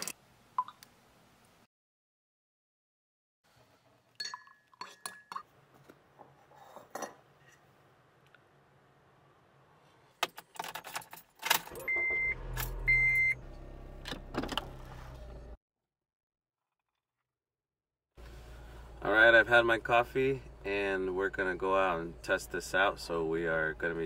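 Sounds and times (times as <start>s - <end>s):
car engine starting and idling: 11.7s - 15.6s, 18.2s - 24.0s.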